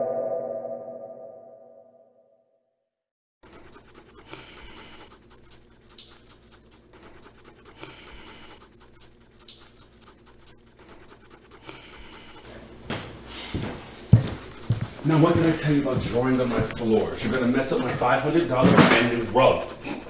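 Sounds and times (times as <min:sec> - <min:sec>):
scribbling on a floor: 0:03.4 - 0:12.6, 0:13.2 - 0:20.0.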